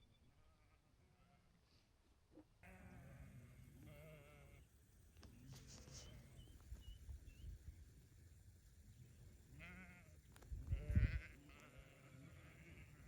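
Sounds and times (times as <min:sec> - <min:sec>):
sheep bleating: 0:02.6 - 0:04.6, 0:09.6 - 0:10.1, 0:10.7 - 0:13.0.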